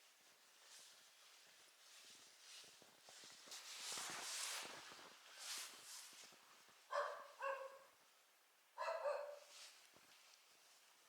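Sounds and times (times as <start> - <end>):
faint soft rustling: 0.0 - 6.9, 9.4 - 11.0.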